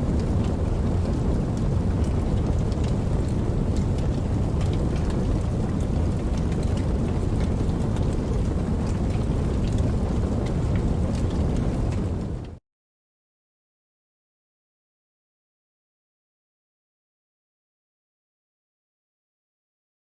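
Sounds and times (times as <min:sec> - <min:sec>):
deep rumble: 0:00.0 - 0:12.6
raindrops ticking: 0:00.1 - 0:12.6.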